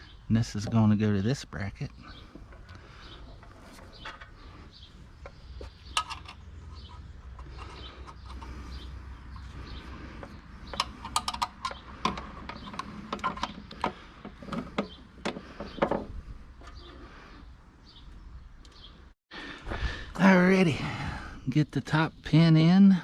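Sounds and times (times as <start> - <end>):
metal hardware clicks and clinks: 10.7 - 14.9.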